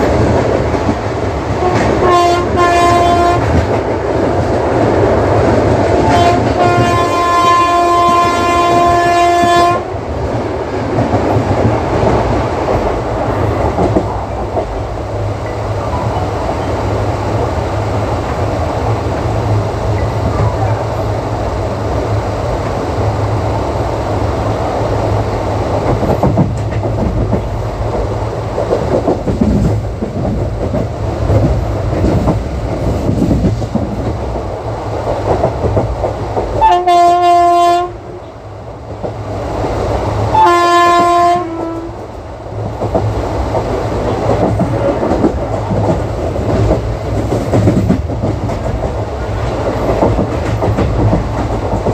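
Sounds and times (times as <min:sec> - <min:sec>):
train rumble: 0:00.0 - 0:51.9
locomotive horn blasts: 0:01.6 - 0:03.6, 0:06.0 - 0:09.9, 0:36.6 - 0:38.1, 0:40.3 - 0:42.0
train wheels clacking over rail joints: 0:10.8 - 0:14.9, 0:25.7 - 0:37.8, 0:42.5 - 0:51.9.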